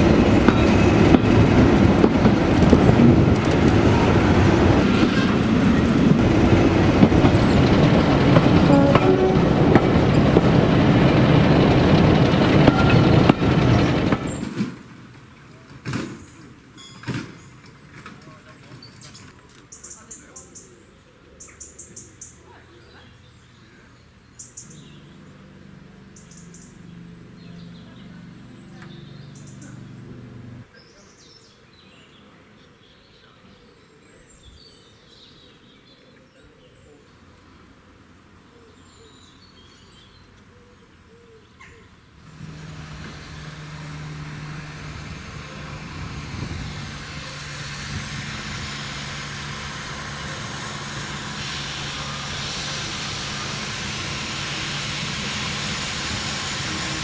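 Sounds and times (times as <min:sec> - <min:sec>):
low engine hum: 0:00.0 - 0:14.5, 0:24.6 - 0:30.7, 0:42.2 - 0:57.0
train engine note: 0:00.0 - 0:14.8, 0:42.2 - 0:57.0
birds chirping: 0:16.2 - 0:37.6
loud train hiss: 0:42.2 - 0:57.0.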